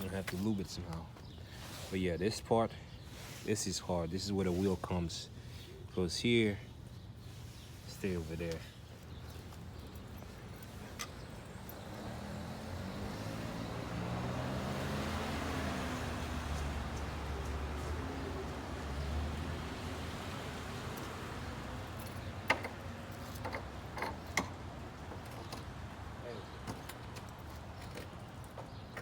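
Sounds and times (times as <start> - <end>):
vehicle engine passing by: 11.1 - 21.9.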